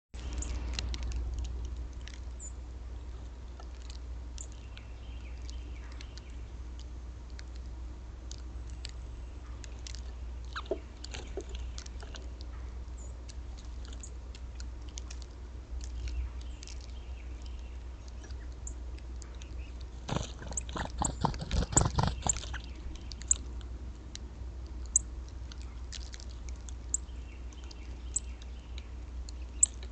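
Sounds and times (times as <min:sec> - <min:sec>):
steady low hum: 0:00.2 - 0:29.9
birds cracking seed: 0:13.3 - 0:29.9.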